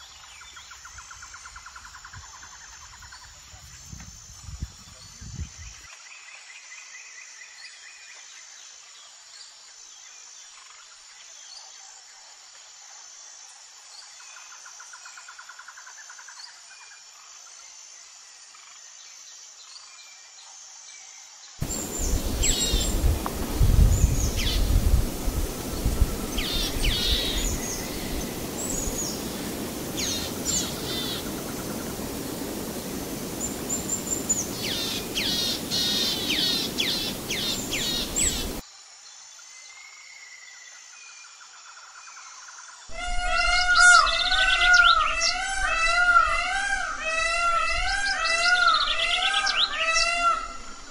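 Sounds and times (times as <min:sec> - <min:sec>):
small birds calling: 0:21.6 - 0:38.6.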